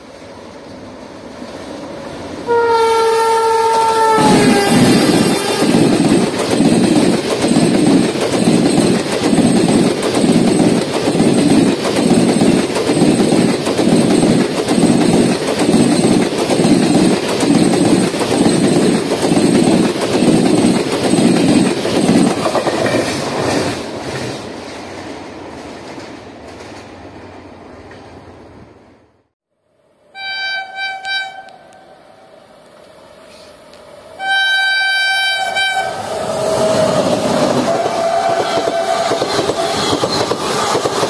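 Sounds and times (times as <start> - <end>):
wheels clattering over rail joints: 4.8 - 26.9.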